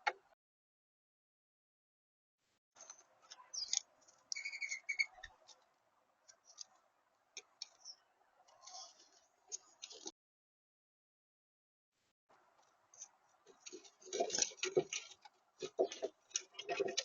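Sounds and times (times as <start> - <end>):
small birds chirping: 2.8 - 10.1, 12.9 - 17.0.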